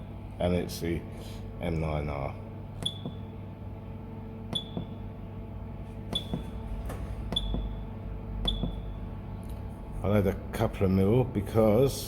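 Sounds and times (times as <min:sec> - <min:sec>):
steady low hum: 0:00.0 - 0:12.0
keypad beeps: 0:02.8 - 0:03.2, 0:04.5 - 0:05.0, 0:06.1 - 0:06.5, 0:07.3 - 0:07.8, 0:08.4 - 0:09.0.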